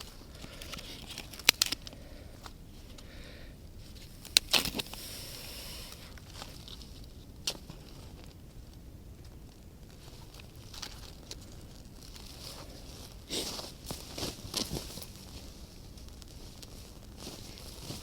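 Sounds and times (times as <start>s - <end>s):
dry wood snapping: 0.0s - 2.0s, 4.2s - 5.0s
dry leaves rustling: 9.9s - 18.0s.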